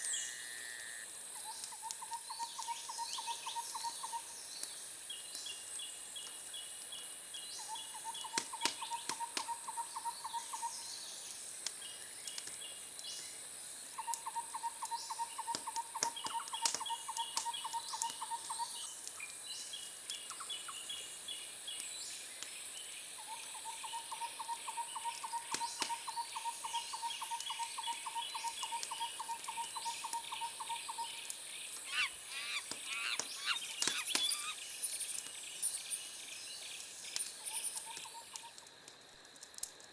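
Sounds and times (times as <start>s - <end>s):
wood fire crackling: 11.1s - 14.2s, 31.2s - 39.9s
high chirping trills: 31.8s - 34.6s
animal trills: 31.9s - 34.6s.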